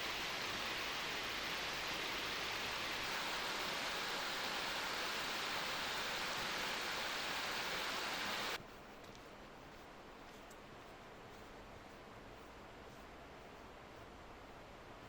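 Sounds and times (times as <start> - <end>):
stream rushing over rocks: 0.0 - 8.6.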